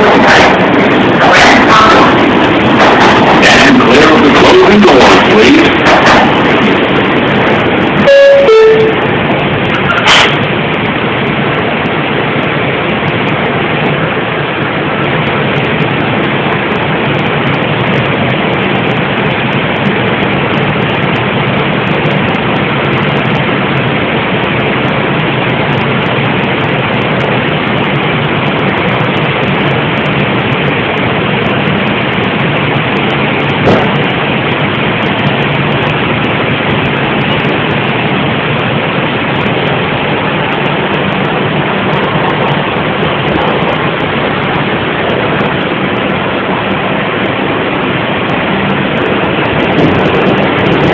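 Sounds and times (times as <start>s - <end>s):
subway train running rumble: 0.0s - 50.9s
two-tone descending door chime: 8.1s - 9.0s
sharp knock: 33.6s - 34.0s.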